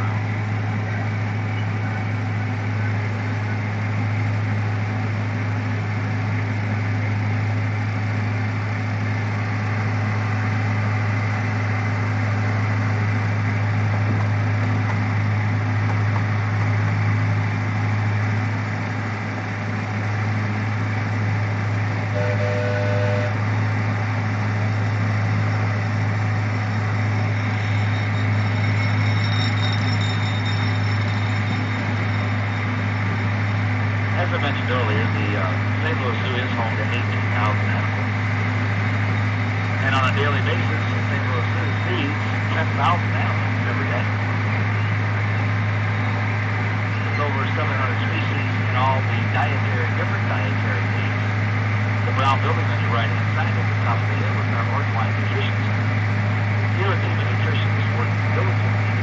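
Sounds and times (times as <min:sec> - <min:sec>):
train engine humming: 0:00.0 - 0:59.0
train running noise: 0:00.0 - 0:59.0
faint tone: 0:22.0 - 0:23.5, 0:24.8 - 0:37.8.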